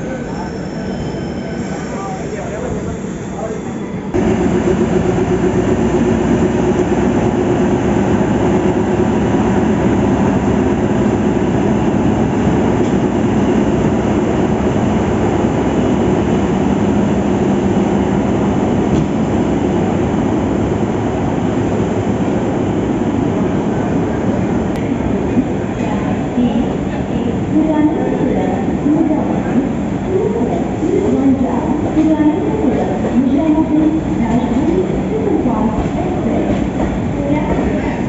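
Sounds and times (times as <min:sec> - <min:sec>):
passenger train rumble: 0:00.0 - 0:38.0.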